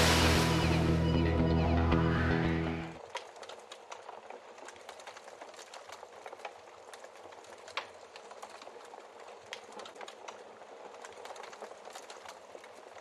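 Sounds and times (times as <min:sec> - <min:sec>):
wood fire crackling and popping: 0:00.0 - 0:01.3, 0:03.0 - 0:13.0
music: 0:00.0 - 0:03.0.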